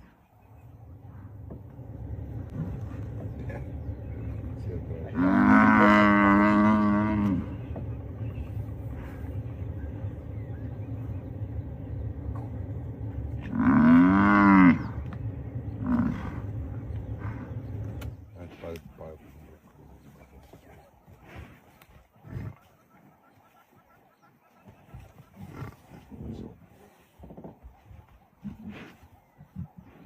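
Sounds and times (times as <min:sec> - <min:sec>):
steady low rumble: 0:00.3 - 0:22.9
buffalo bellowing: 0:00.6 - 0:18.3.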